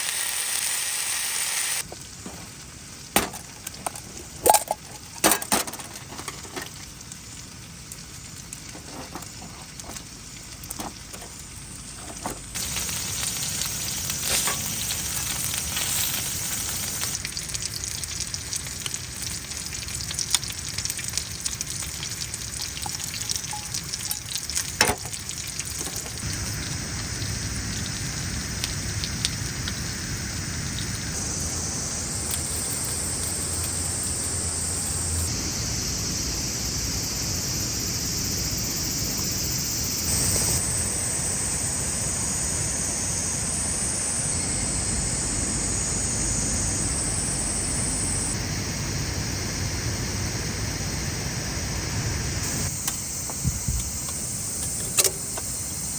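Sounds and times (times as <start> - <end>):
food sizzling in a pan: 0.0 - 55.9.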